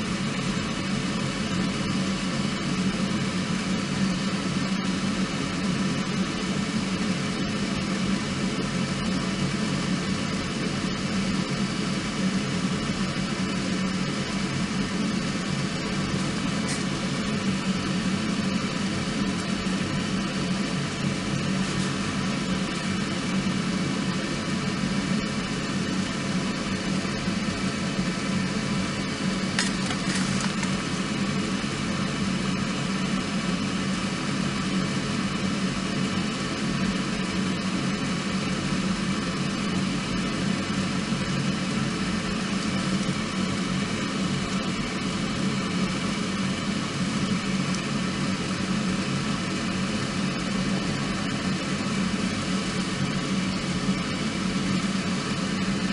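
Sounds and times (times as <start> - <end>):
low steady hum: 0.0 - 55.9
wood fire hissing: 13.0 - 28.4, 29.1 - 32.1
fire crackle: 29.4 - 31.0.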